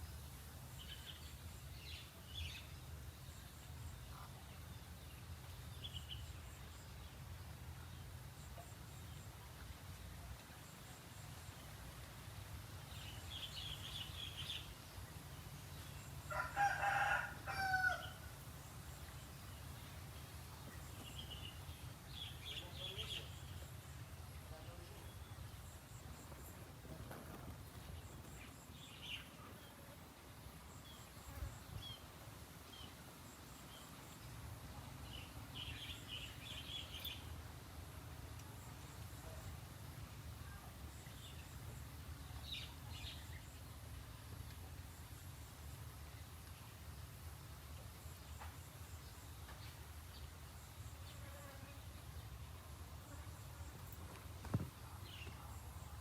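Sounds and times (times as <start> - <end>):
rooster crowing: 16.3 - 18.3
small birds chirping: 19.0 - 37.4.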